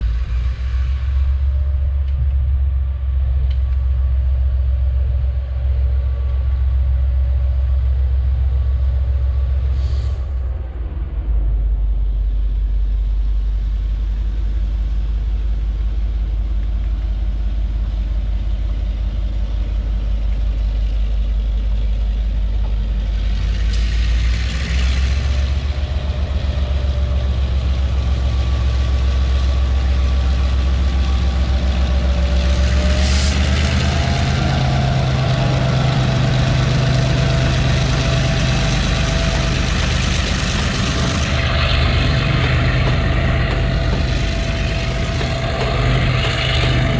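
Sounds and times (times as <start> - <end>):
diesel locomotive engines under load: 0.0 - 46.9
brief air hiss: 9.7 - 10.4, 33.0 - 33.4.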